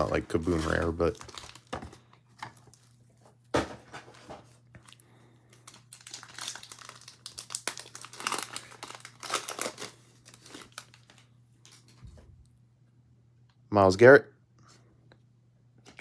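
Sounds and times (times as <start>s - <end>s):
card pack wrappers crinkling: 0.0s - 3.0s, 4.0s - 12.0s.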